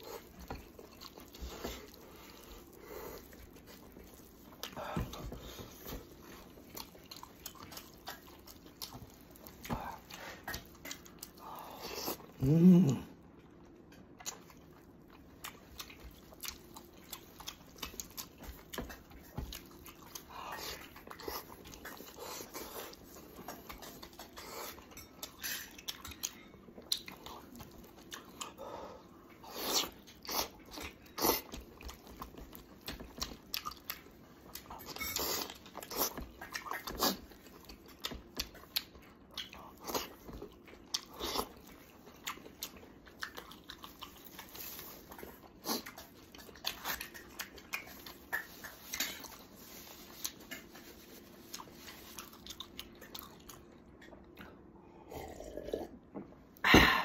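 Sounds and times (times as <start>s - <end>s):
meat crunching: 0.0s - 12.4s, 29.5s - 54.2s
man chewing and smacking: 0.0s - 56.6s
loud hummed vocal sound: 12.3s - 13.2s.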